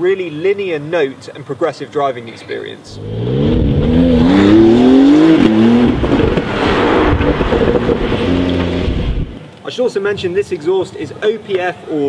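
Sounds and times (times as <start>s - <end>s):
car engine accelerating: 3.0s - 9.4s.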